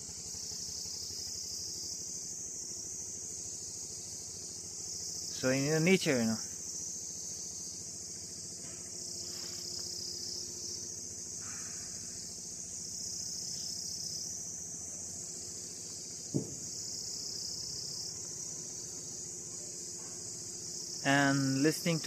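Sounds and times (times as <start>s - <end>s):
insects trilling: 0.0s - 22.0s
short knock: 16.3s - 16.6s.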